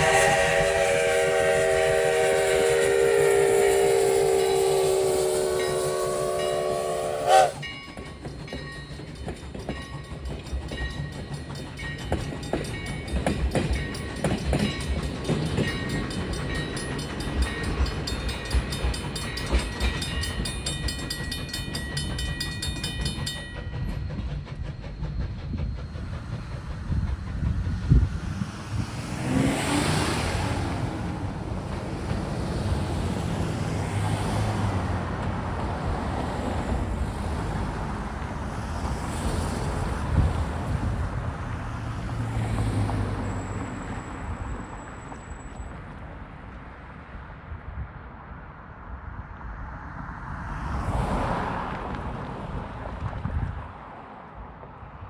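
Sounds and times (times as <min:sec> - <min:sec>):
railroad crossing bell ringing: 0:00.0 - 0:26.1
train wheels clattering on rails: 0:00.0 - 0:47.2.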